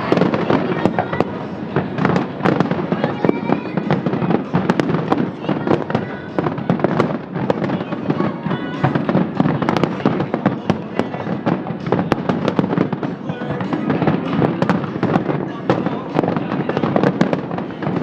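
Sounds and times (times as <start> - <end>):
fireworks bangs and crackling: 0.0 - 18.0.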